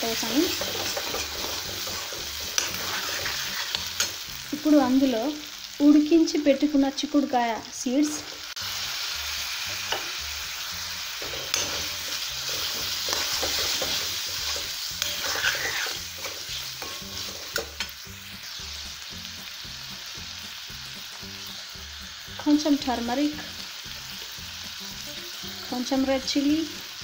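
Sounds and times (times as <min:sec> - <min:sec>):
steel spoon scraping pan: 0:00.0 - 0:04.2, 0:11.2 - 0:18.0
food frying and sizzling: 0:00.0 - 0:27.0.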